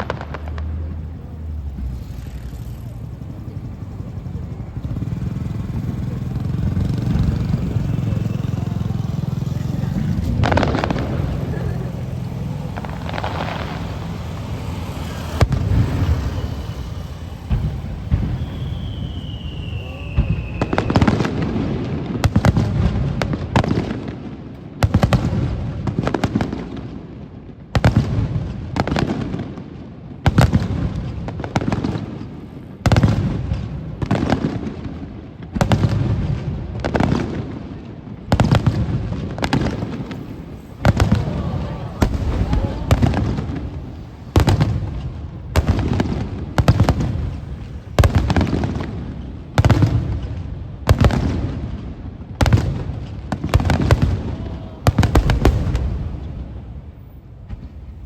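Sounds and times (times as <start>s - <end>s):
rumbling echo: 0.0s - 23.2s, 38.3s - 58.0s
fireworks bangs: 0.0s - 58.0s
falling firework whistle: 7.1s - 22.7s, 38.4s - 50.2s, 52.5s - 58.0s.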